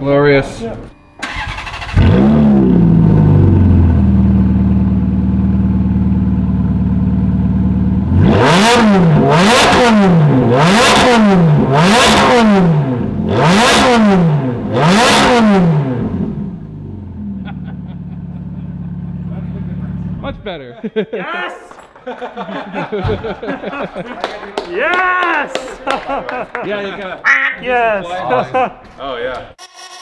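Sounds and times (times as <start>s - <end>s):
engine throttle blips: 0.9s - 20.4s
car engine idling: 1.2s - 8.2s, 15.8s - 20.3s.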